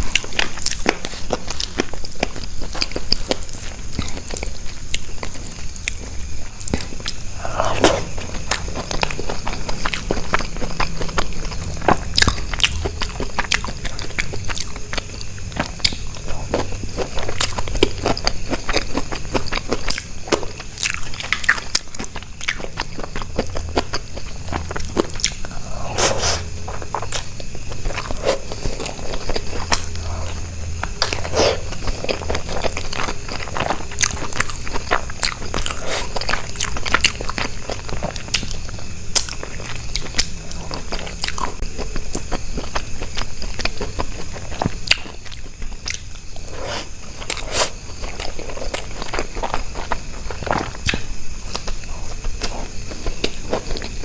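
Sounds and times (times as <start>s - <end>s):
chewing and biting: 0.0s - 54.0s
wet mouthfuls: 7.1s - 8.7s, 24.4s - 27.2s.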